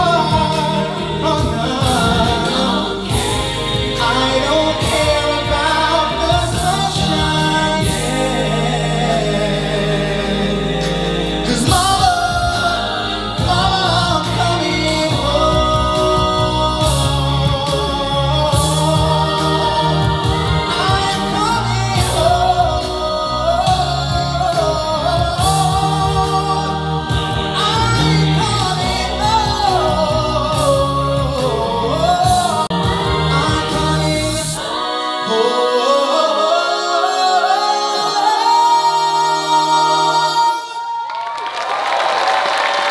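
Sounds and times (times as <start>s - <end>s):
low bass voice line: 0.0s - 4.8s
a cappella vocal harmony: 0.0s - 41.6s.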